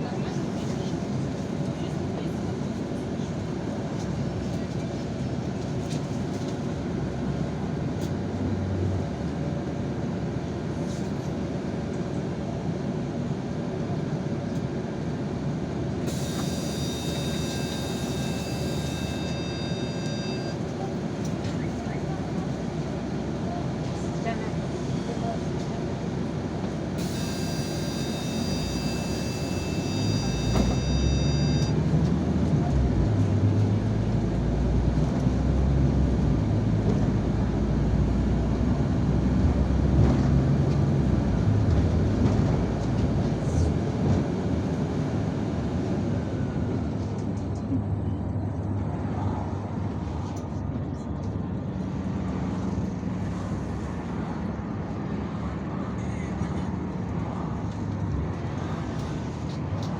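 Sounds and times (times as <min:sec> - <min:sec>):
bus engine drone: 0:00.0 - 0:59.9
road noise: 0:14.7 - 0:59.9
high electronic beep: 0:16.1 - 0:20.6, 0:27.0 - 0:31.7.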